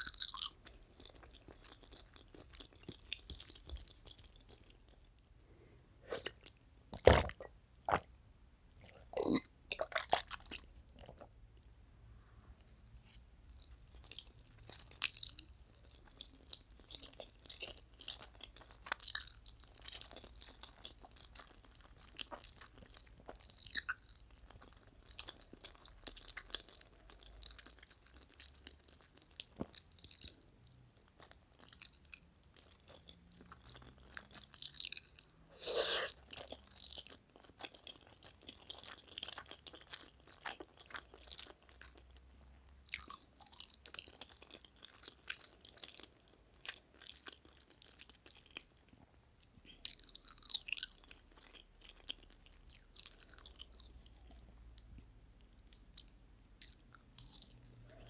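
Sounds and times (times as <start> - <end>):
chewing and slurping noodles: 0.0 - 5.2, 13.9 - 30.4, 31.0 - 42.3, 42.9 - 49.0, 49.7 - 54.9.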